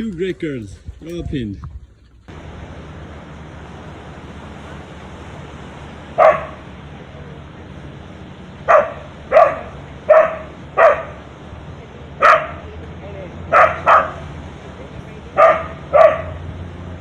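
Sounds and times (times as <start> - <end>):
dog barking: 6.2 - 6.6, 8.7 - 11.2, 12.2 - 12.6, 13.5 - 14.2, 15.4 - 16.4.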